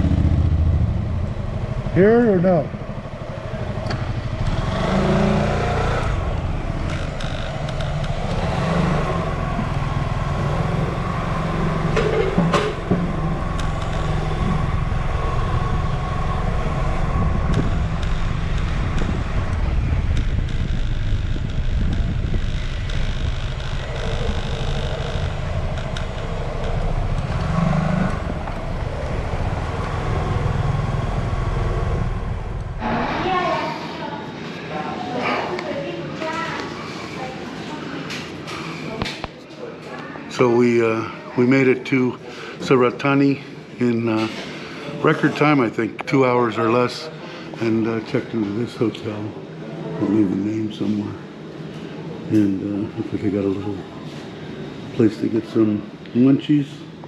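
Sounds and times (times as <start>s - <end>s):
wind and road noise: 0.0s - 33.7s
motorcycle engine drone: 0.0s - 35.2s.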